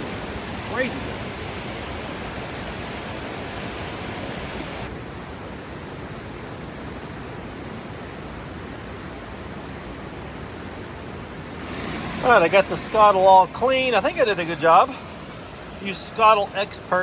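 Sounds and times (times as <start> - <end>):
steady hiss: 0.0 - 4.9, 10.5 - 17.0.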